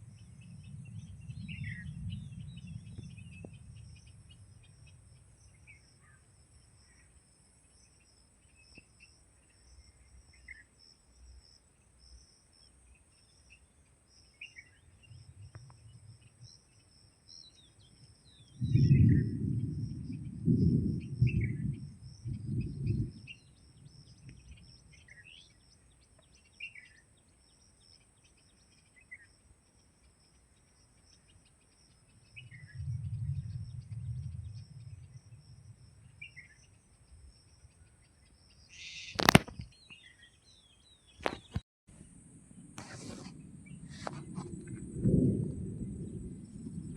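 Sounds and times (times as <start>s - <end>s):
low rumbling bursts: 0.0s - 5.3s, 18.5s - 24.8s, 42.0s - 46.9s
bird chirping: 0.0s - 42.1s
sharp click: 39.1s - 39.7s.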